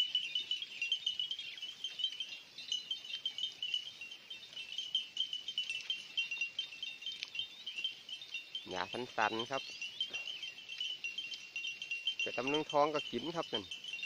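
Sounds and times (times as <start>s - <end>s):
insect chorus chirping: 0.0s - 14.0s.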